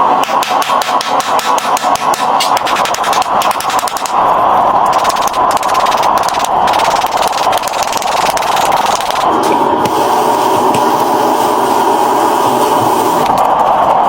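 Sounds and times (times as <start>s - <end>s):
workshop machine running: 0.0s - 14.0s
rapid ticking: 0.1s - 9.9s.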